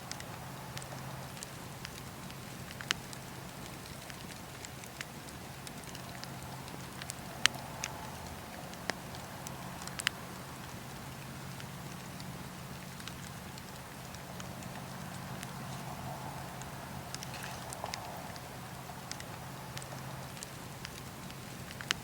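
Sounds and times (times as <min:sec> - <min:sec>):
campfire crackling and popping: 0:00.0 - 0:22.0
steady low hum: 0:00.0 - 0:22.0.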